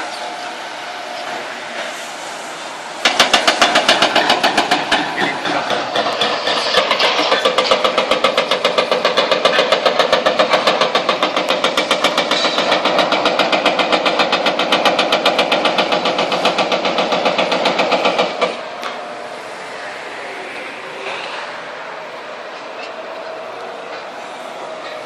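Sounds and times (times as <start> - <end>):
excavator engine running: 2.6 - 25.0
hydraulic breaker hammering concrete: 3.0 - 18.6.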